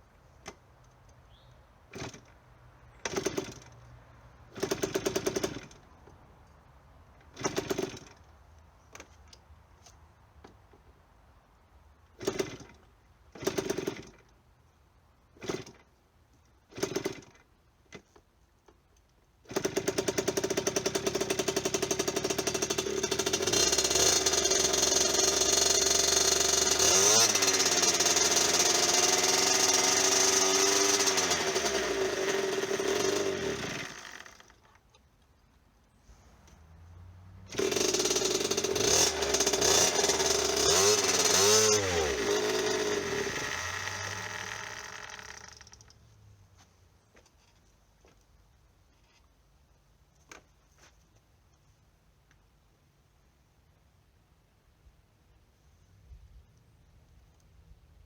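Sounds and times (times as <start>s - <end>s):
small two-stroke engine starting: 1.9s - 2.4s, 3.0s - 3.8s, 4.5s - 5.8s, 7.3s - 8.2s, 12.2s - 14.3s, 15.4s - 15.9s, 16.7s - 17.4s, 19.4s - 34.8s, 37.2s - 46.0s.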